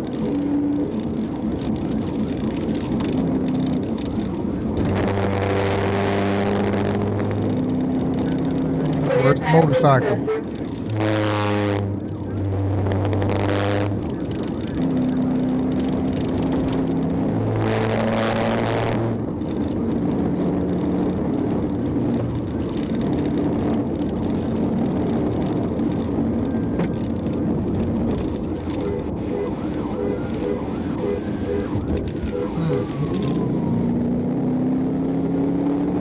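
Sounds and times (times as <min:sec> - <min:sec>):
car engine and road noise: 0:00.0 - 0:36.0
car horn blasts: 0:28.8 - 0:32.9.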